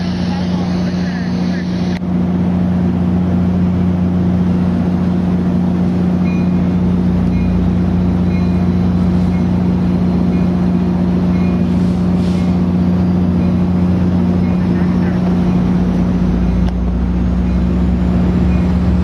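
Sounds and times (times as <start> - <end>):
diesel locomotive idling: 0.0 - 19.0.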